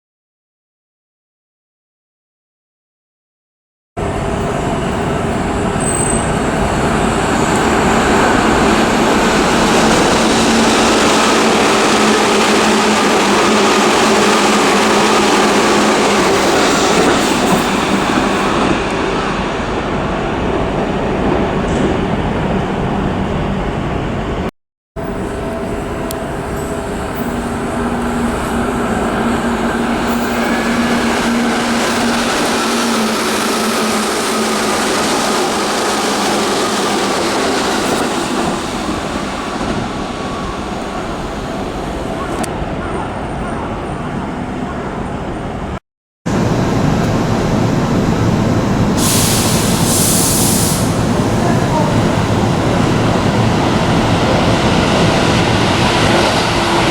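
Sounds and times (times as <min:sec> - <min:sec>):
wheels on rail running noise: 0:04.0 - 0:56.9
train motor hum and whine: 0:25.0 - 0:45.8.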